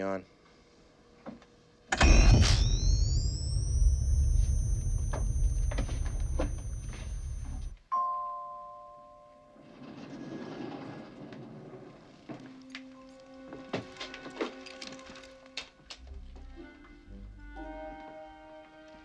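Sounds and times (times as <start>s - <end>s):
clicks: 1.9s - 7.8s
low hum with high whining tones: 1.9s - 7.8s
elevator arrival chime: 2.0s - 7.8s.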